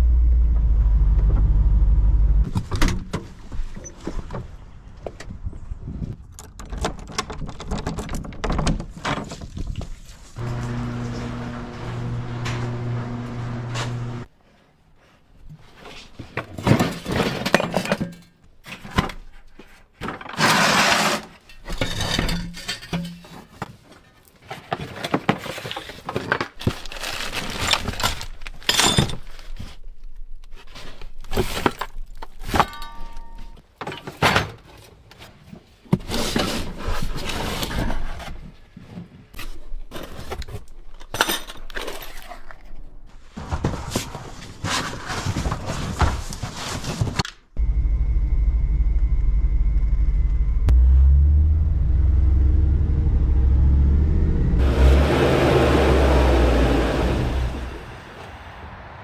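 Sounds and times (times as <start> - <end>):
knocks scrapes and clatter: 15.1 - 29.8, 30.4 - 47.3.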